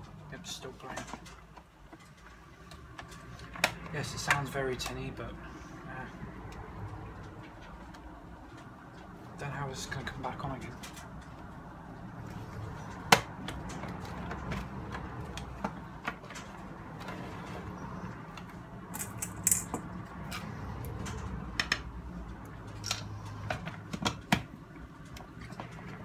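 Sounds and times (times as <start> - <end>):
plastic radio clicks and knocks: 13.0 - 16.4, 23.4 - 26.0.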